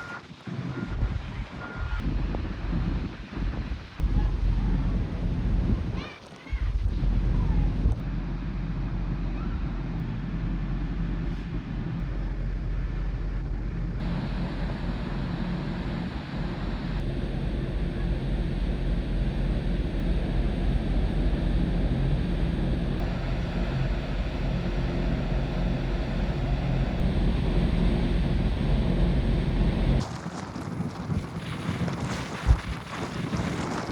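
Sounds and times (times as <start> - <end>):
ferry engines droning: 6.6 - 30.0.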